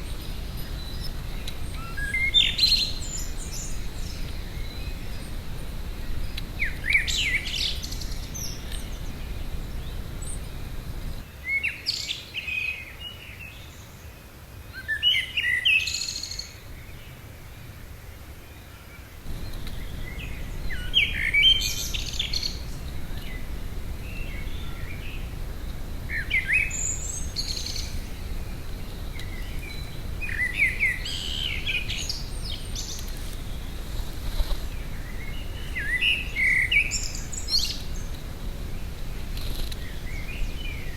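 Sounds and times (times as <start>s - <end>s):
low background rumble: 0.0s - 11.2s, 19.3s - 40.9s
songbirds singing: 0.0s - 40.9s.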